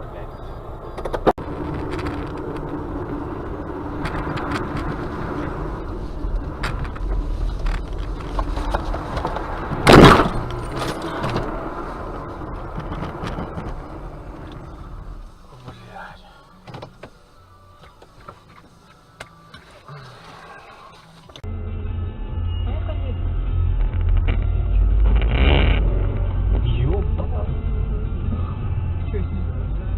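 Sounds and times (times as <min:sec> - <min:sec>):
car engine and road noise: 0:00.0 - 0:29.9
loud short bang: 0:09.8 - 0:11.4.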